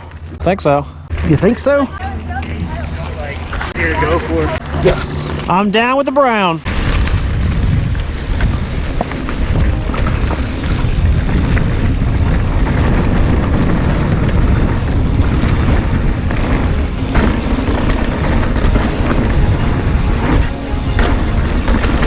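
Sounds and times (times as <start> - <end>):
bike clicks and rattles: 6.7 - 22.0
tyres on dirt: 6.7 - 22.0
wind on camera microphone: 6.7 - 22.0.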